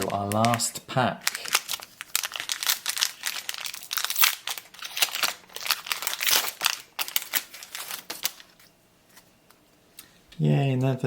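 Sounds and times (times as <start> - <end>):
wrapper crinkling: 0.0 - 8.7.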